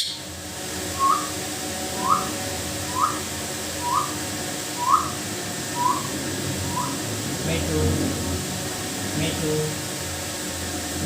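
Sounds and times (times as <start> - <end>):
short rising whistled notes: 1.0 - 1.4, 2.0 - 4.2, 4.8 - 7.0.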